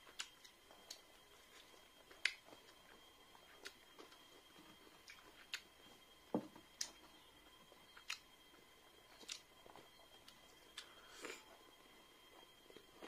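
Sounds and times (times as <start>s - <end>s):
chewing and lip smacks: 0.0s - 5.8s, 7.9s - 8.4s, 9.1s - 11.5s
faint steady high tone: 0.0s - 13.0s.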